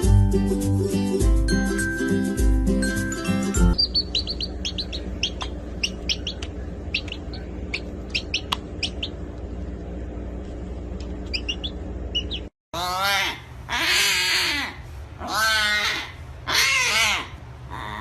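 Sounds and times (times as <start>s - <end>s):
small bird chirping: 3.7s - 9.3s, 11.1s - 12.5s
steady low hum: 3.7s - 12.5s.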